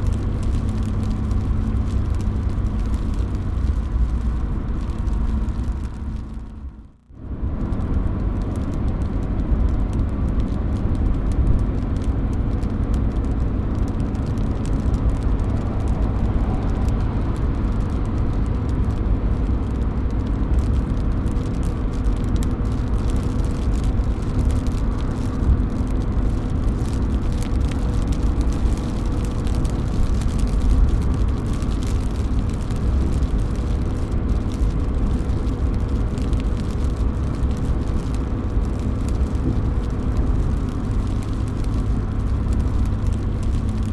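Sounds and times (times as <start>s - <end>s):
deep low rumble: 0.0s - 43.9s
steady rain: 0.0s - 43.9s
drops falling off roof: 7.7s - 43.9s.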